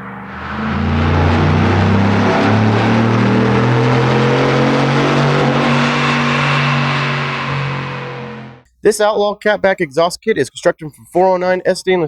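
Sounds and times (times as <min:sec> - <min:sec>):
truck engine revving under throttle: 0:00.0 - 0:08.6.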